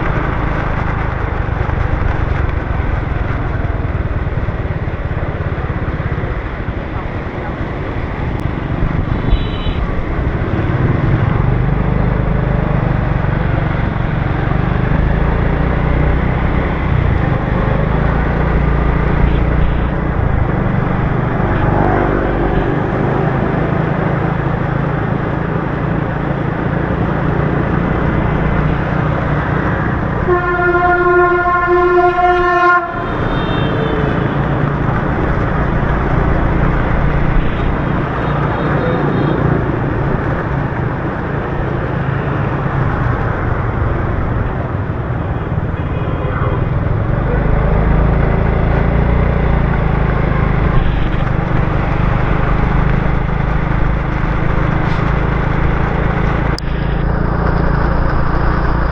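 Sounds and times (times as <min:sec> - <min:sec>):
motorbike engine and road rumble: 0:00.0 - 0:58.9
horn blast: 0:30.2 - 0:34.6.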